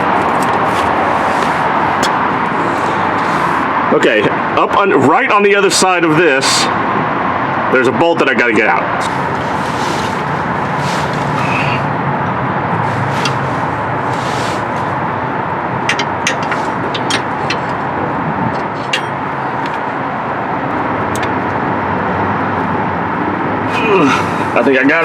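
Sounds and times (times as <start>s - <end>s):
steady rushing noise: 0.0s - 25.0s.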